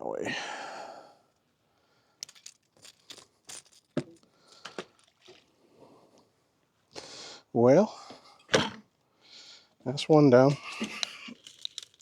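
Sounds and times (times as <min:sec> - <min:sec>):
handling clicks and knocks: 0:02.2 - 0:05.0, 0:10.6 - 0:12.0.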